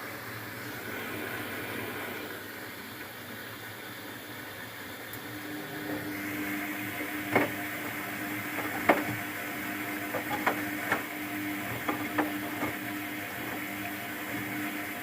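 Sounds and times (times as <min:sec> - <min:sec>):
washing machine motor hum: 0:00.0 - 0:15.0
sharp clicks and knocks: 0:07.3 - 0:09.2, 0:10.1 - 0:12.8.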